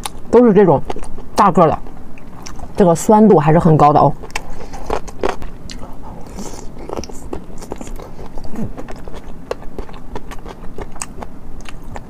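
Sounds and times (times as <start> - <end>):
biting and chewing: 4.2 - 12.0.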